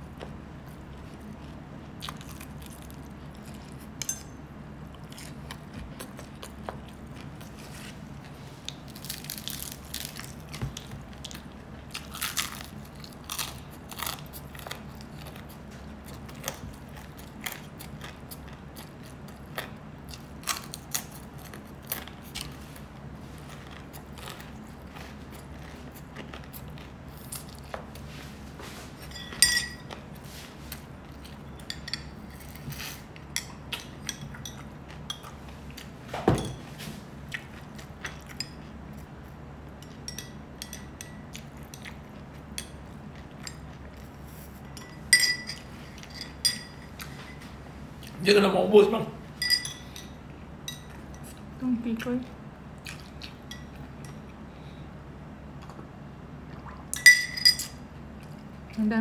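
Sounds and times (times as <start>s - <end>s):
chewing and crunching food: 0.0s - 36.1s, 36.8s - 48.3s, 49.4s - 58.8s
steady low hum: 0.0s - 59.0s
sharp ringing clink: 29.1s - 29.9s, 44.8s - 46.8s, 49.4s - 50.0s, 57.0s - 57.8s.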